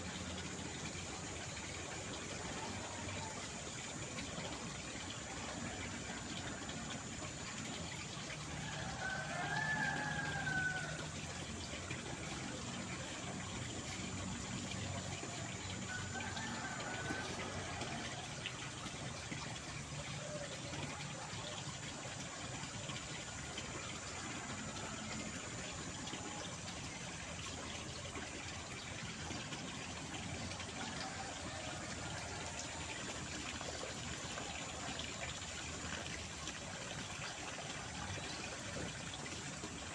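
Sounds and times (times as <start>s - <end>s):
flowing water: 0.0s - 39.9s
faint wavering calls: 4.5s - 27.2s.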